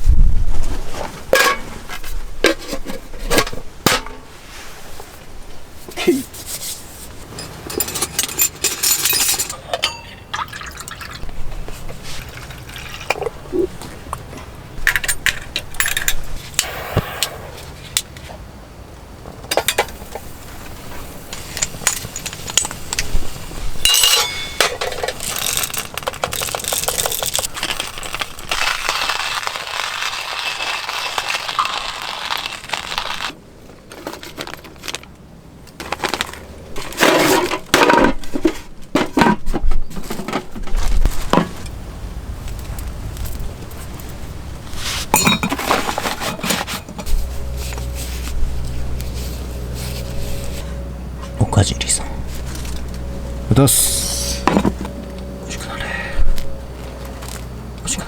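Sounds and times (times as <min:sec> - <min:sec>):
cookware or glass clinking: 0:07.3 - 0:11.2, 0:23.8 - 0:24.9, 0:45.2 - 0:45.6
liquid pouring: 0:10.1 - 0:11.4.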